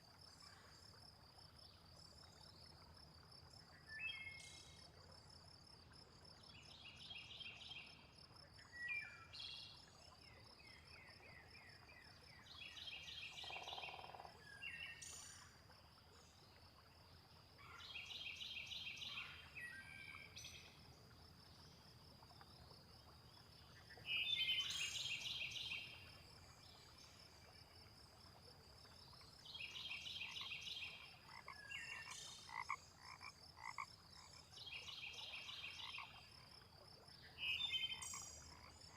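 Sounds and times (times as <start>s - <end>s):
frogs croaking: 10.2s - 16.8s, 17.6s - 38.9s
insect trill: 13.4s - 14.3s.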